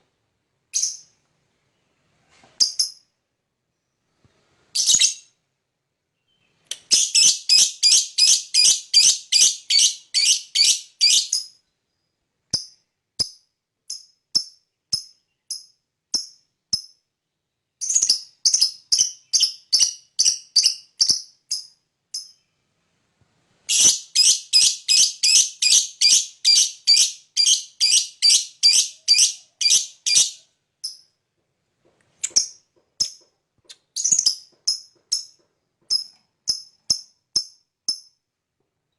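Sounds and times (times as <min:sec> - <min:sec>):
lovebird shrill chattering chirps: 0:06.8 - 0:11.5, 0:23.7 - 0:30.4.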